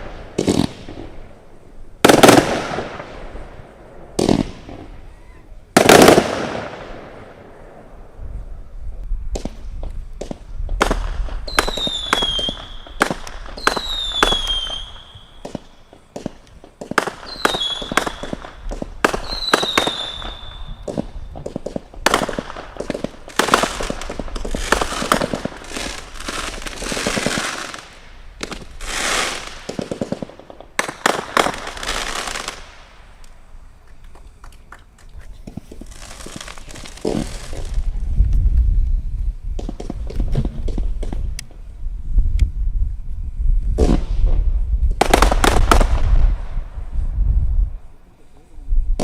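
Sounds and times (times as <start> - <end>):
firework bangs: 0.0 - 5.1, 5.7 - 8.1, 9.3 - 33.2, 35.4 - 38.0, 39.5 - 41.3, 43.7 - 47.0
firework crackling: 0.0 - 42.9, 43.6 - 48.0
firework whistles: 9.4 - 34.1, 35.5 - 38.1.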